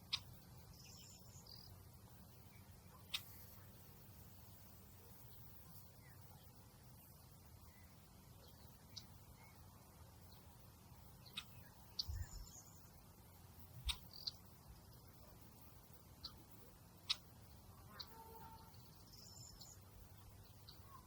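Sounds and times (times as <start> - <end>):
faint high chirps: 0.0 - 21.0
faint outdoor hush: 0.0 - 21.0
sharp ticks: 17.0 - 17.3.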